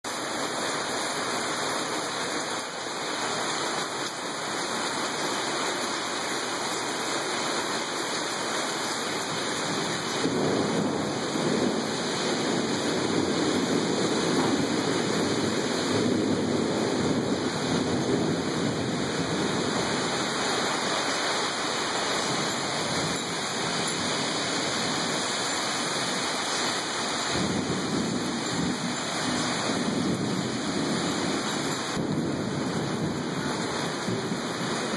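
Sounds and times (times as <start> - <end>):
heavy rain: 0.0 - 34.9
rolling thunder: 9.6 - 20.4, 22.2 - 34.9.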